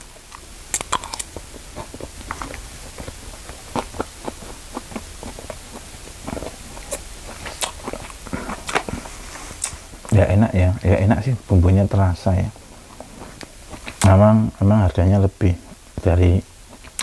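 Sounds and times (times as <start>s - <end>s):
person chewing food: 0.0s - 10.2s, 12.6s - 14.2s, 16.6s - 17.0s.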